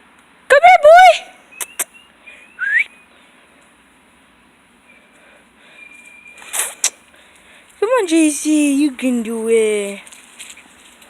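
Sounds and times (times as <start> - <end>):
person whistling: 2.5 - 2.9.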